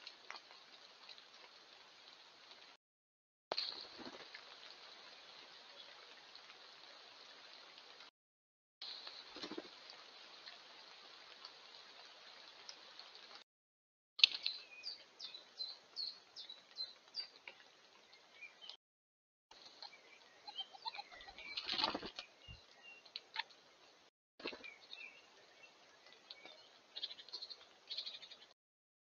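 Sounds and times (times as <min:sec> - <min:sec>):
wings fluttering: 0:03.5 - 0:04.9, 0:08.9 - 0:10.0, 0:20.8 - 0:22.6, 0:24.4 - 0:24.7
bird calls: 0:19.7 - 0:23.5.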